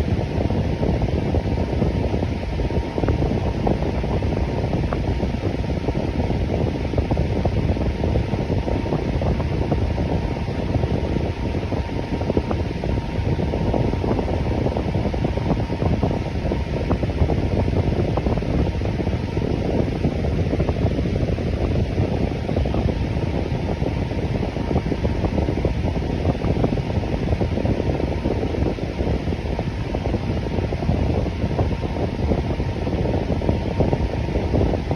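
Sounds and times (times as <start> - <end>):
electric fan running: 0.0 - 34.9.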